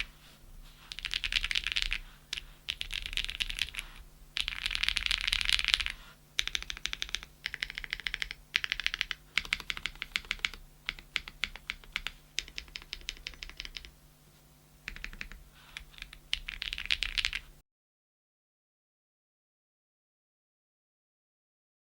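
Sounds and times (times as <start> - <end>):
clacky mechanical keyboard typing: 0.9 - 13.9, 14.9 - 17.4.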